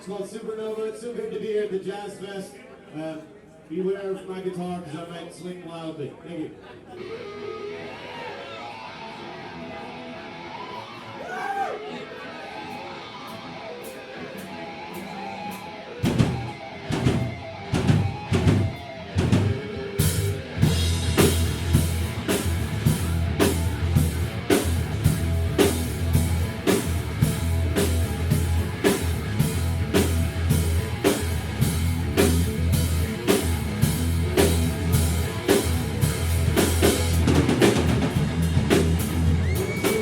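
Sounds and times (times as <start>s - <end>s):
electric guitar: 6.8s - 40.0s
bass guitar: 12.2s - 40.0s
drum kit steady beat: 13.3s - 40.0s.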